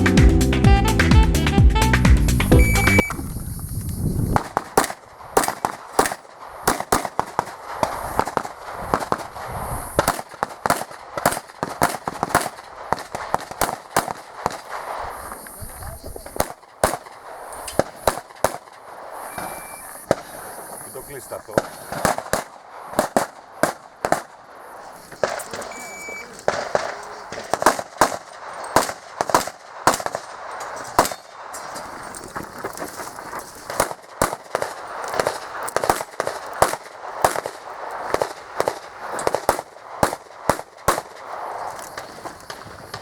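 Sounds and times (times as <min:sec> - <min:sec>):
handgun shots: 0:04.4 - 0:09.2, 0:25.1 - 0:30.3, 0:30.9 - 0:31.3.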